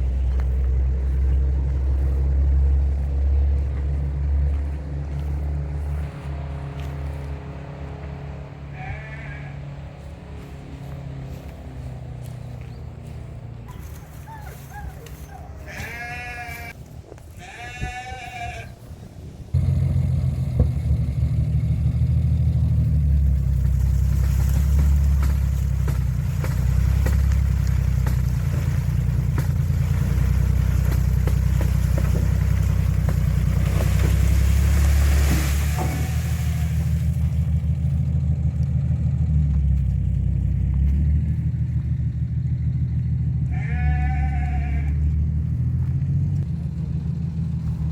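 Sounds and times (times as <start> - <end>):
tractor engine rumble: 0.0 - 47.9
livestock bleats: 8.7 - 9.8, 15.6 - 16.8, 17.4 - 18.8, 43.4 - 45.2.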